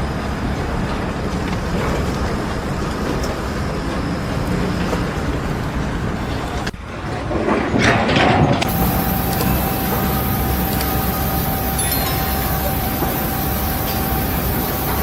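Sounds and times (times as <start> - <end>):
engine low rumble: 8.6 - 15.0.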